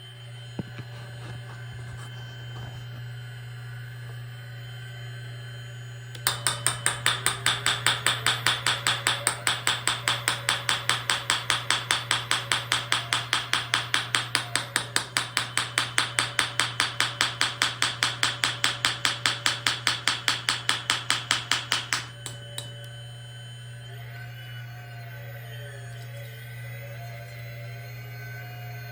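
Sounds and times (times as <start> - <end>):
steady low hum: 0.0 - 28.9
model jack hammer hammering: 6.2 - 22.7.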